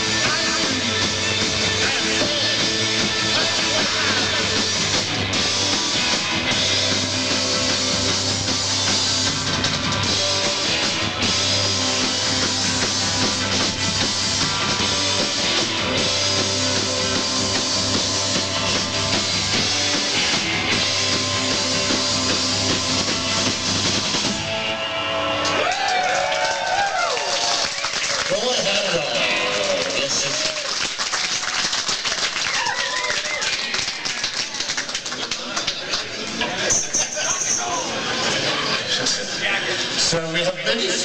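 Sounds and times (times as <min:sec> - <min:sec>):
live rock band: 0:00.0 - 0:25.7.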